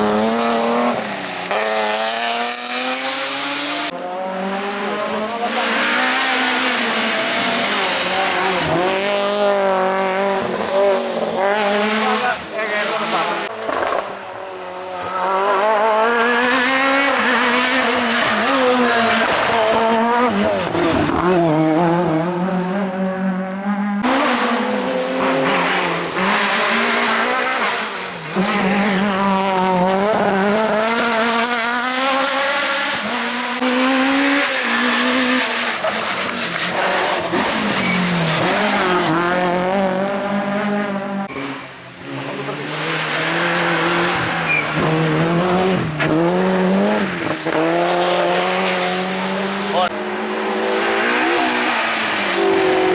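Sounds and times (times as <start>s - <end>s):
rally car engines revving: 0.0s - 52.9s
tyre squeal: 35.8s - 39.0s, 44.2s - 45.0s.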